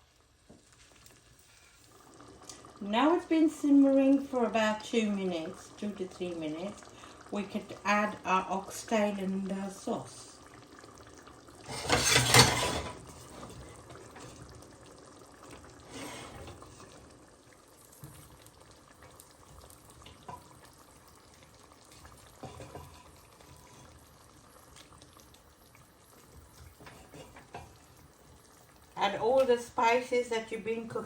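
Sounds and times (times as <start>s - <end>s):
liquid splashing into a pan: 10.4s - 29.5s.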